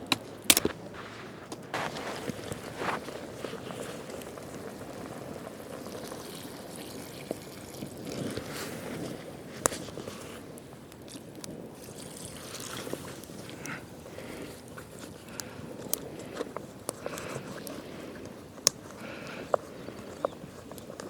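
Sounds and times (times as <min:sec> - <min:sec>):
sharp click: 0:00.5 - 0:00.8.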